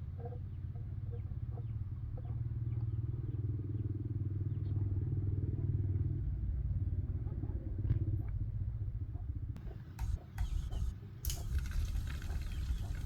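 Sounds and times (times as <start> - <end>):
engine running: 9.6 - 13.0.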